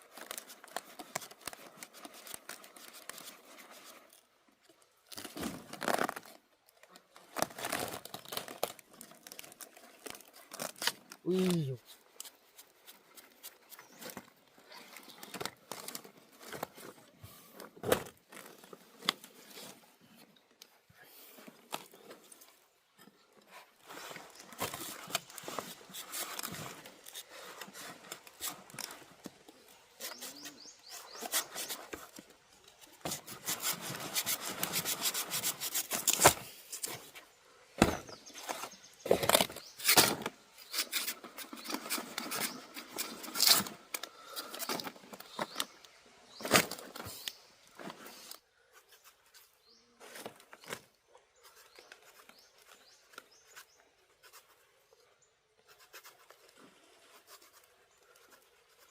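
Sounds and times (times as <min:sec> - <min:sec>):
wood scraping and rubbing: 0:23.5 - 0:37.2.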